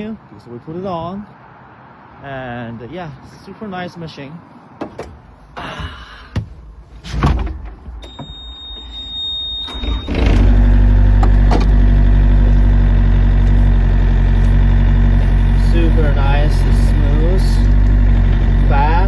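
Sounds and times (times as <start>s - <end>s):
thump: 5.8s - 8.3s
diesel engine starting and idling: 8.0s - 19.0s
steady high beep: 8.1s - 10.1s.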